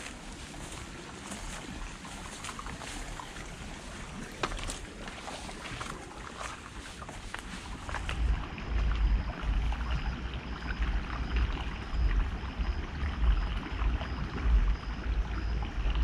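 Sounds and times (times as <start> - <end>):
river water flowing over rocks: 0.0 - 9.8.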